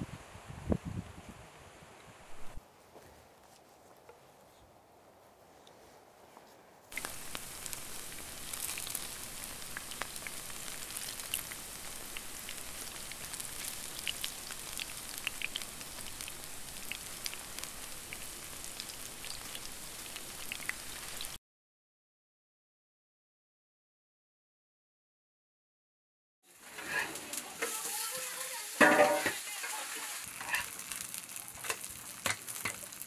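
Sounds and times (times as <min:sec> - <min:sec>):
food frying in oil: 0:06.9 - 0:21.4, 0:26.4 - 0:33.0.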